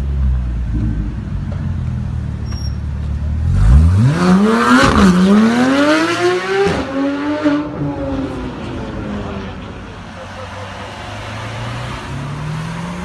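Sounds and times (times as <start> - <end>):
car engine accelerating hard: 3.3 - 9.6, 10.7 - 13.0.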